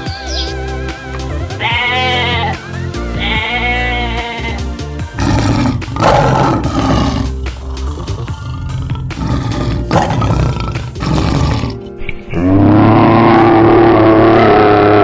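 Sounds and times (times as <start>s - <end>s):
background music: 0.0s - 15.0s
animal bleat: 1.5s - 7.2s
loud rough animal roar: 3.2s - 15.0s.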